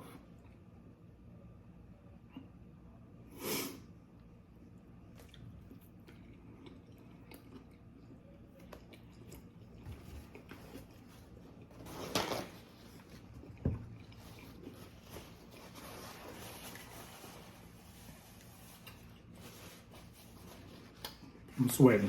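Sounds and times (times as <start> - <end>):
person chewing: 5.0 - 11.8, 12.8 - 15.8, 20.0 - 21.6.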